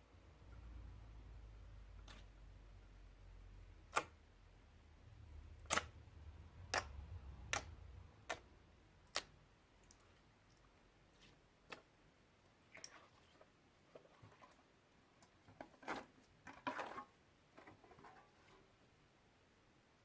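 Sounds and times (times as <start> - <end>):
slime clicking and popping: 5.6 - 6.0, 6.7 - 10.0.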